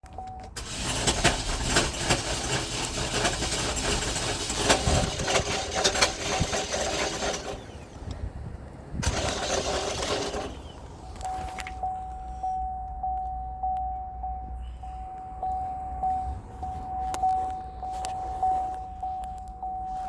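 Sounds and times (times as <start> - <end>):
car engine starting and running: 0.0 - 20.0
sharp clicks and rattles: 0.1 - 11.8.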